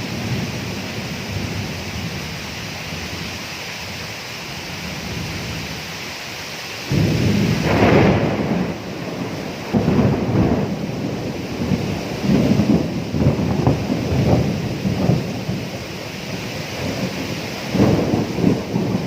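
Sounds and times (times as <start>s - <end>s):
steady rainfall: 0.0s - 19.0s
thunder crack and rumbling: 6.9s - 19.0s.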